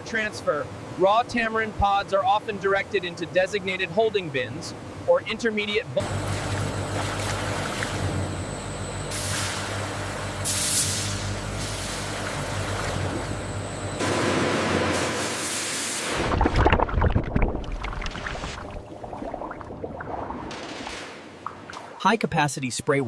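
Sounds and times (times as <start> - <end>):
machinery humming and hissing: 0.4 - 16.2.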